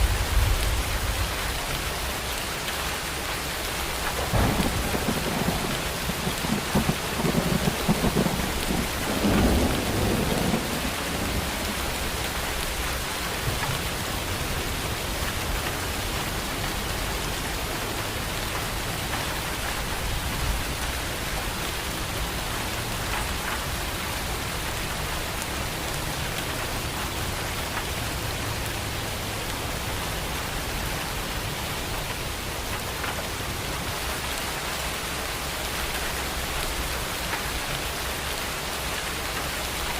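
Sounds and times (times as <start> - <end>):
heavy rain falling: 0.0 - 39.9
thunder rumbling: 3.9 - 27.3.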